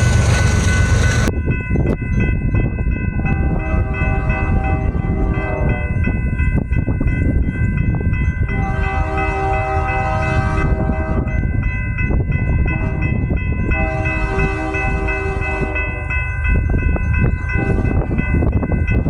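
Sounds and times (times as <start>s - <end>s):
passing train rumble: 0.0s - 19.0s
locomotive air horn: 3.2s - 6.0s, 8.5s - 11.4s, 12.7s - 13.2s, 13.8s - 16.1s, 17.6s - 18.1s.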